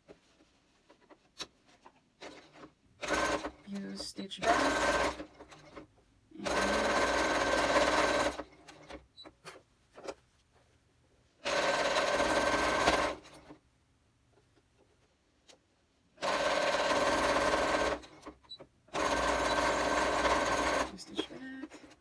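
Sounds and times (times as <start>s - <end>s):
sewing machine stitching: 0.9s - 10.2s, 11.4s - 13.6s, 16.2s - 22.0s
sewing machine clicks: 16.2s - 21.0s.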